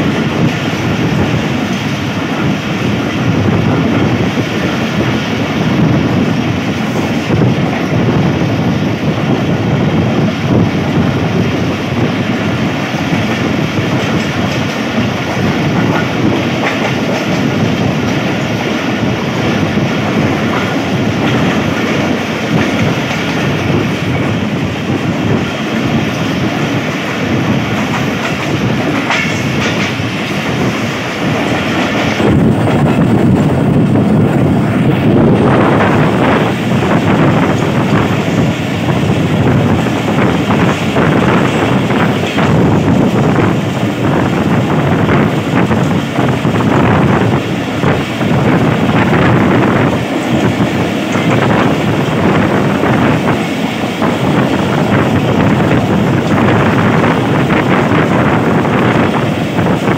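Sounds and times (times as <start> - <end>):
train wheels clickety-clack: 0.0 - 59.9.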